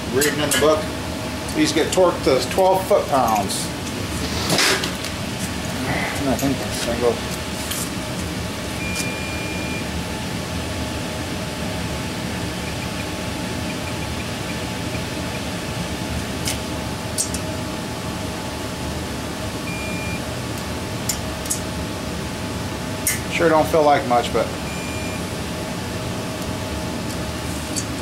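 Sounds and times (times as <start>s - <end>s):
background hum and hiss: 0.0s - 28.0s.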